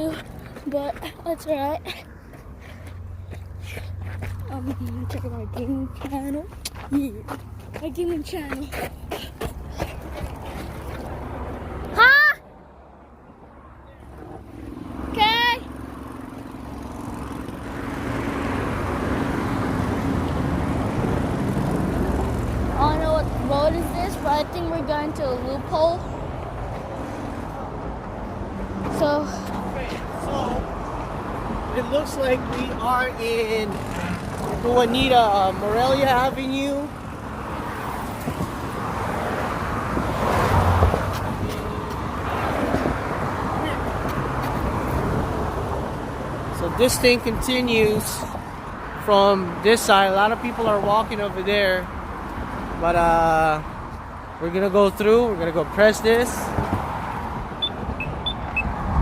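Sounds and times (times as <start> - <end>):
road traffic noise: 0.0 - 59.0
vehicle engine hum: 0.0 - 59.0
car passing close by: 14.1 - 24.1, 26.2 - 47.2, 56.1 - 59.0.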